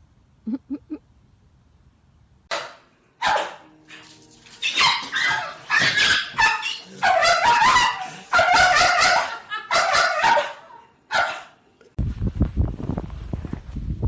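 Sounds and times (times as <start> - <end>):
dog barking and yipping: 2.5 - 11.6.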